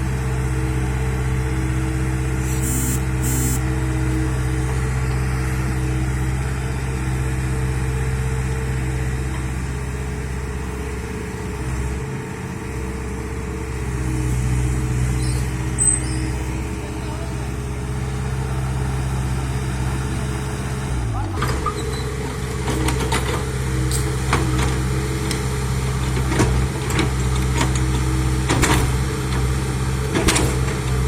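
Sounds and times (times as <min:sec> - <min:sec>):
bulldozer diesel engine running: 0:00.0 - 0:31.0
short high-pitched sounds: 0:02.4 - 0:03.6.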